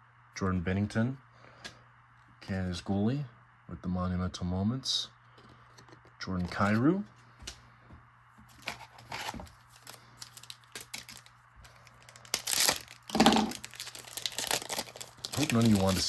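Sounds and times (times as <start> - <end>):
cards clicking and rustling: 8.5 - 16.0
wrapper tearing and crinkling: 8.6 - 16.0.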